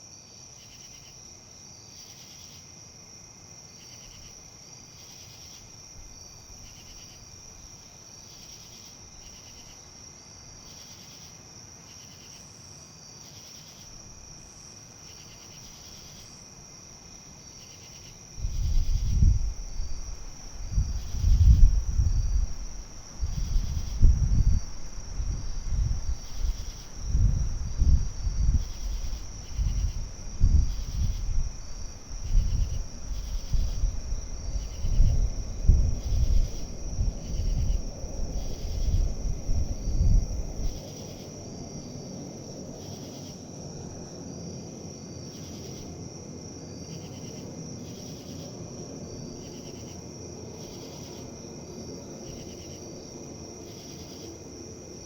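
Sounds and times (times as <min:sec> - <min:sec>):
insect chirring: 0:13.1 - 0:43.5
wind buffeting microphone: 0:18.3 - 0:42.9.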